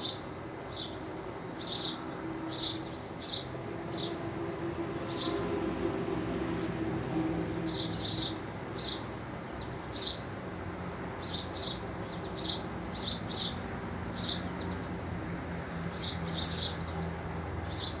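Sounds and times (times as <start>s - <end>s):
small birds chirping: 0.0s - 4.2s, 7.7s - 15.0s, 15.7s - 18.0s.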